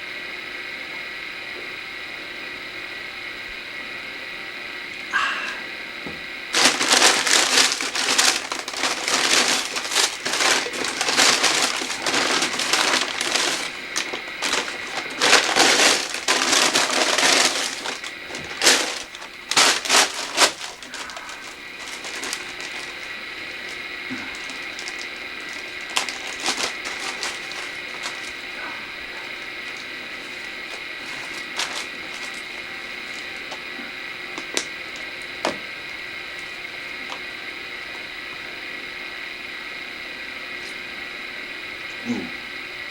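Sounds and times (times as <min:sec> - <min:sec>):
paper wrapping crinkling: 0:06.5 - 0:33.6.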